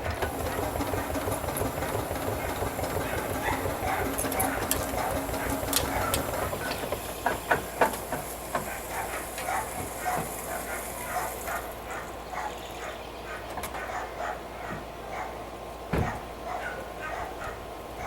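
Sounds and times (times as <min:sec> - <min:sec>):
steam hissing: 0:00.0 - 0:11.9
steam engine exhaust beats: 0:00.0 - 0:12.2.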